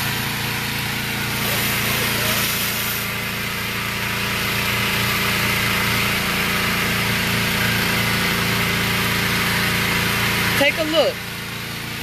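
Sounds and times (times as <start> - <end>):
pressure washer spray hiss: 0.0 - 10.8
pressure washer engine hum: 0.0 - 12.0.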